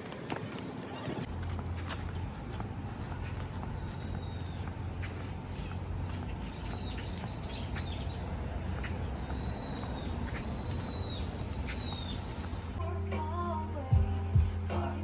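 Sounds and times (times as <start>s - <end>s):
birds whistling and chirping: 0.9s - 12.8s
music: 12.8s - 15.0s.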